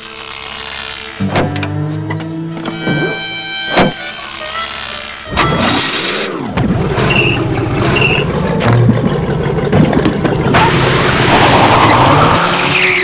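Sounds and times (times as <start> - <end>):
music: 0.0 - 6.8
car engine revving: 0.0 - 13.0.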